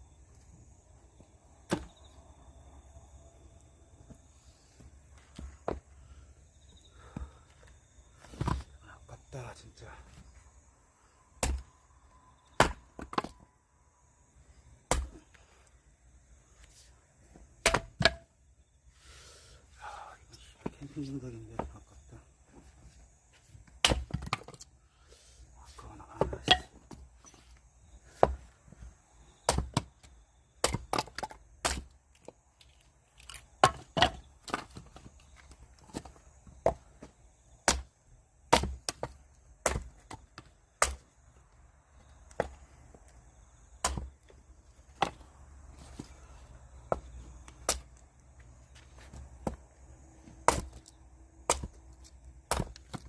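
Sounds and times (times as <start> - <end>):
axe splitting firewood: 1.6 - 2.0, 8.2 - 8.7, 11.3 - 11.8, 12.5 - 13.5, 14.8 - 15.4, 17.3 - 18.4, 23.6 - 24.8, 26.1 - 27.4, 28.0 - 28.6, 29.4 - 41.3, 42.0 - 43.0, 43.7 - 48.0, 48.8 - 53.0.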